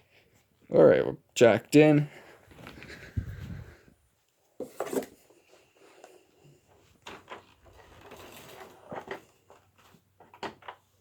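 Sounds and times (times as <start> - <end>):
faint rustling: 2.1 - 10.2.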